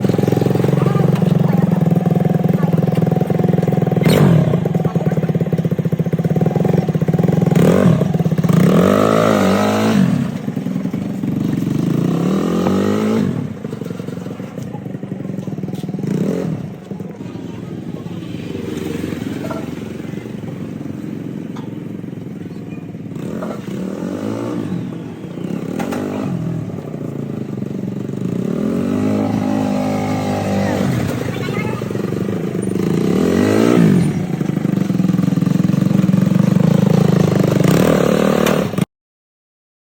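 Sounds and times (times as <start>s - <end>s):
tractor engine revving: 0.0s - 38.9s.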